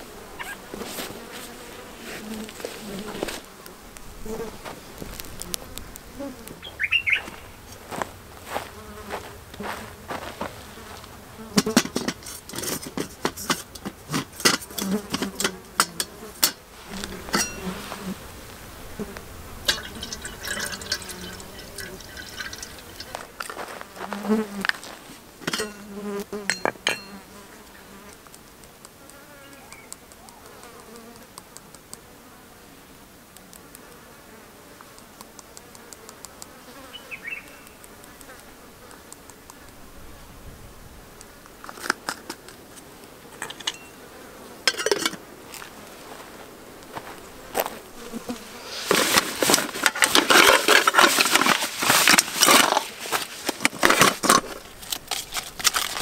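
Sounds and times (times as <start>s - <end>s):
faint hiss: 0.0s - 25.5s, 36.9s - 55.0s
fly buzzing: 0.0s - 56.0s
clicks of things handled: 11.6s - 17.6s, 41.6s - 43.9s, 48.8s - 56.0s.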